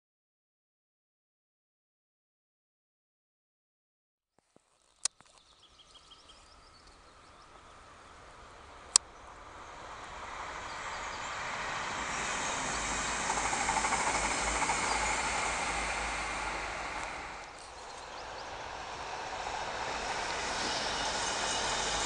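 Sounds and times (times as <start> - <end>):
train crossing a rail bridge: 6.5 - 22.0.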